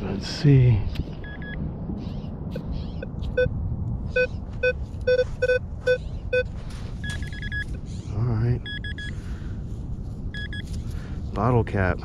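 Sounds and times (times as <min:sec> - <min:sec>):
low steady rumble: 0:00.0 - 0:12.0
pinpointer beeping: 0:01.2 - 0:01.6, 0:04.1 - 0:07.8, 0:08.6 - 0:09.1, 0:10.3 - 0:10.7.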